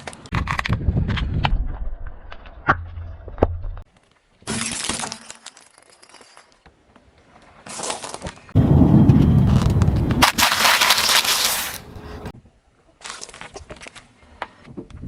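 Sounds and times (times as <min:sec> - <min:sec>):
objects cracking under car tyre: 0:04.6 - 0:12.0
low rumble: 0:08.6 - 0:10.3.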